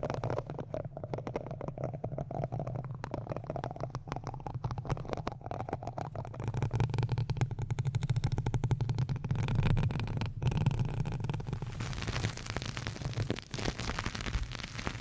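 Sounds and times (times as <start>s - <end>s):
small clicks and taps: 0.0s - 11.6s.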